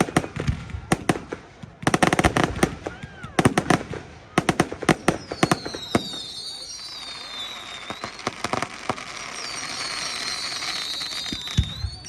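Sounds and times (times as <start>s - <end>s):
firework bangs: 0.0s - 12.0s
firework crackle: 0.0s - 12.0s
firework whistles: 4.9s - 12.0s.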